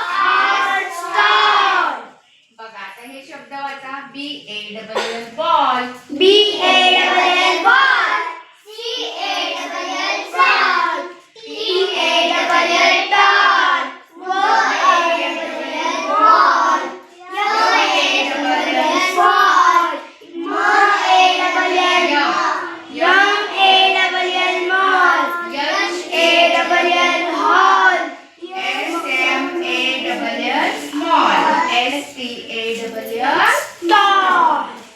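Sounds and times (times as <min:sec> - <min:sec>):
children chanting words: 0:00.0 - 0:02.4, 0:06.0 - 0:34.9.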